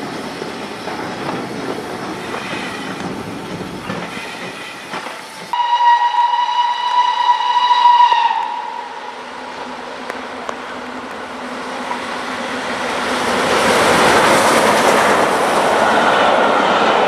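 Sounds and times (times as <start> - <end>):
train rail noise: 0.0 - 17.0
locomotive whistle: 5.5 - 9.3.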